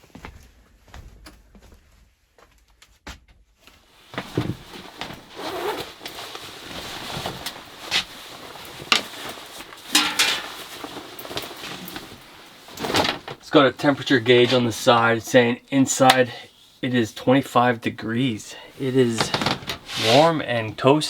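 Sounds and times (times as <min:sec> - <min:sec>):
rustling and scraping: 0:03.9 - 0:13.4, 0:18.8 - 0:20.6.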